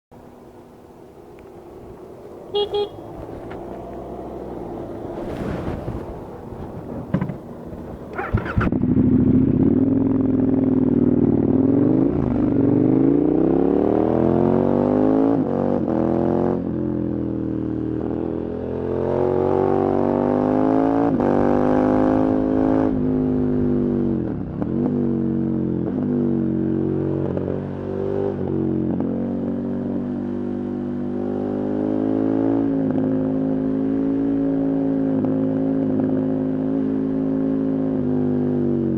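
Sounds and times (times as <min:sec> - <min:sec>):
motorcycle engine accelerating: 0:01.4 - 0:18.1.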